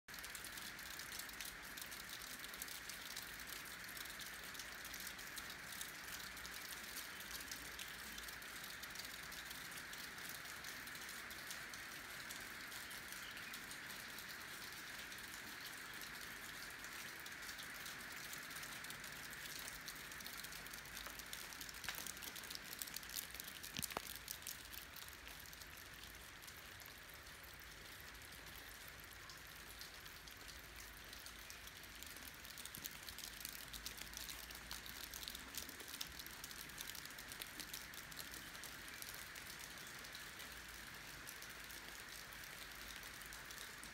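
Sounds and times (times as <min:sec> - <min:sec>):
steady rain hiss: 0:00.1 - 0:43.9
single raindrops striking: 0:15.3 - 0:43.9.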